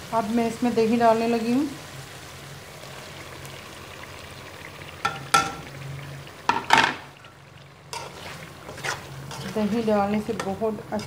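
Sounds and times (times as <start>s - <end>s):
chicken and potatoes sizzling in pot: 0.0s - 11.0s
spoon knocking against metal pot: 5.0s - 5.7s.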